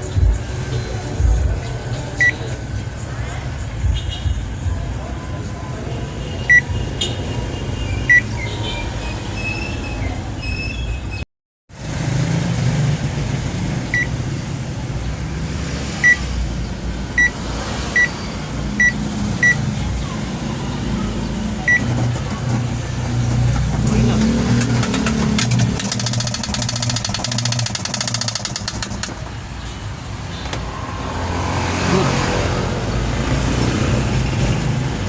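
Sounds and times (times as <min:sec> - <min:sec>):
washing machine beeps: 0:02.2 - 0:02.4, 0:06.4 - 0:06.8, 0:08.0 - 0:08.5, 0:13.9 - 0:14.2, 0:16.0 - 0:16.2, 0:17.2 - 0:17.4, 0:18.0 - 0:18.2, 0:18.8 - 0:19.6, 0:21.6 - 0:22.0, 0:25.8 - 0:29.1.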